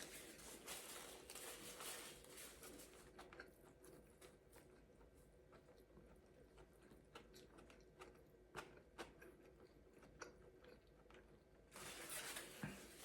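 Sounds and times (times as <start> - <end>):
rustling noise: 0.0 - 3.0, 11.7 - 13.0
chewing food: 2.6 - 11.6.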